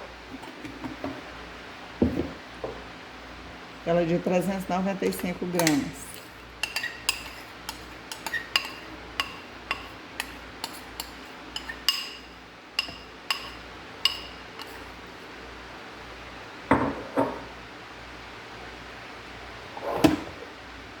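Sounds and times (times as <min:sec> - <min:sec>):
utensil clinking against dish: 0:05.0 - 0:14.9.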